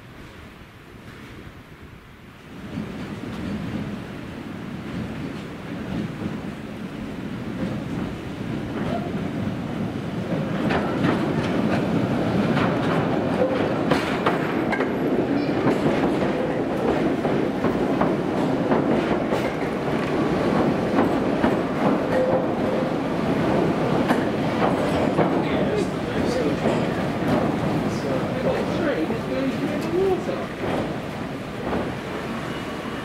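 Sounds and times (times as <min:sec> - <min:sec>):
electric train rumbling: 0:00.0 - 0:33.0
wheels clicking over rail joints: 0:10.3 - 0:32.2.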